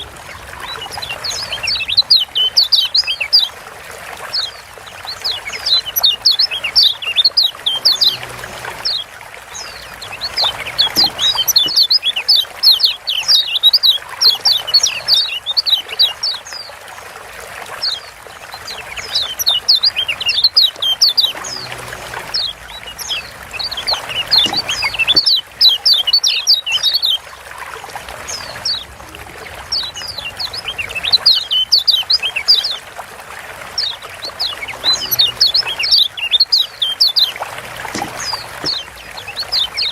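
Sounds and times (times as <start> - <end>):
bird chattering calls: 9.6 - 16.3, 18.8 - 27.1, 33.8 - 39.9
trickling hiss: 17.5 - 39.9.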